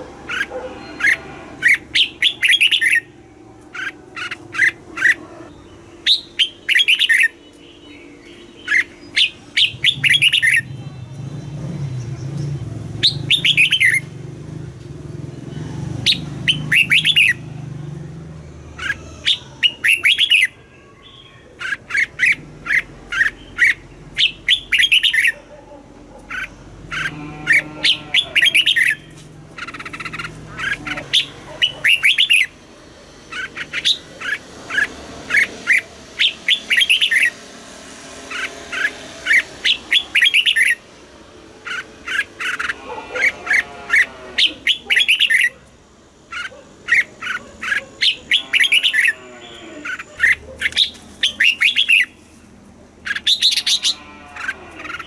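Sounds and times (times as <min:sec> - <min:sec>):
bird singing bright chirps: 0:00.3 - 0:14.1, 0:15.5 - 0:17.4.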